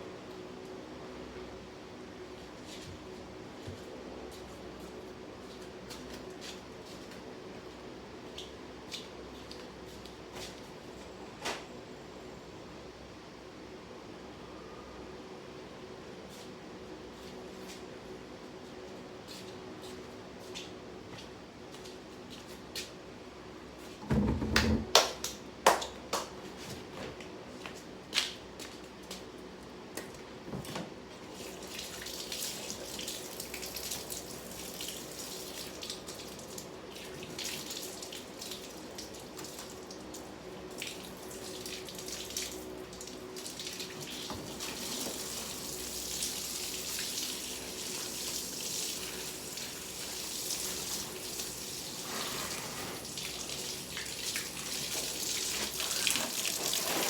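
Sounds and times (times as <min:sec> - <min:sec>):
water running from a tap: 0:31.3 - 0:57.0.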